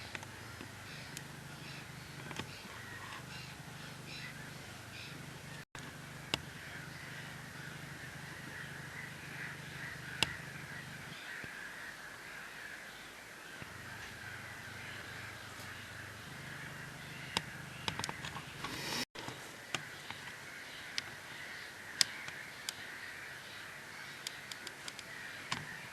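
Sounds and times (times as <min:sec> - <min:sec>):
flock of birds chattering: 0:00.0 - 0:25.9
sharp clicks: 0:17.3 - 0:19.1, 0:24.2 - 0:25.7.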